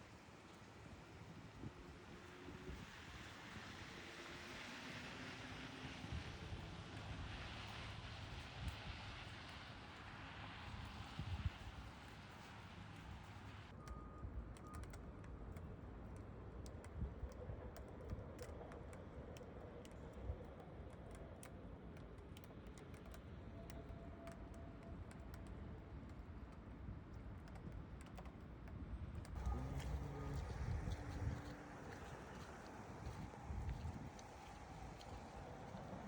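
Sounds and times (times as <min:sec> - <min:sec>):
raindrops ticking: 0:14.6 - 0:36.0
low traffic rumble: 0:28.5 - 0:36.0.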